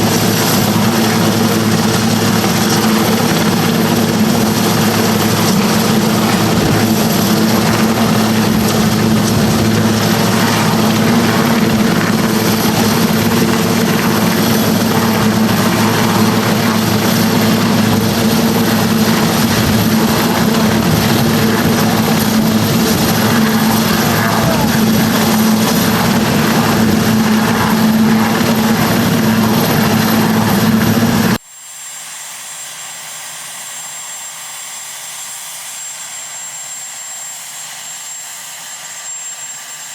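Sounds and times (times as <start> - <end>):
deep even hum: 0.0 - 31.4
faint high whine: 0.0 - 32.9
helicopter rotor and turbine noise: 0.0 - 39.9.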